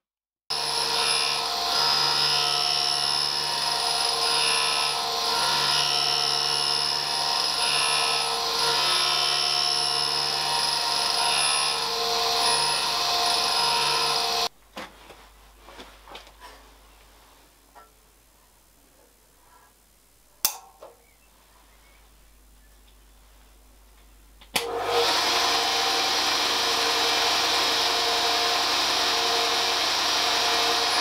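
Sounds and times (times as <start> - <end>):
grinding wheel whining: 0.5 - 14.5, 24.9 - 31.0.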